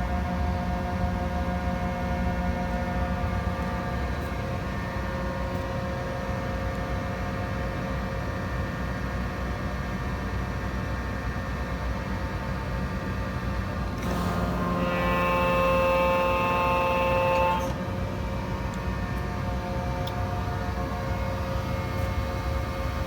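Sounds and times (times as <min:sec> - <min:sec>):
machine hum: 0:13.8 - 0:23.0
machine whining tones: 0:14.0 - 0:18.6.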